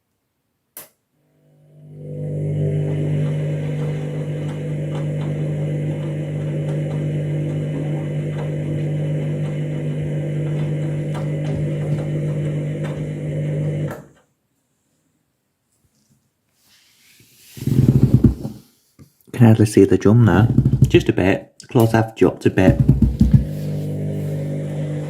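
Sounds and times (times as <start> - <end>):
washing machine humming: 1.6 - 14.1, 22.6 - 25.0.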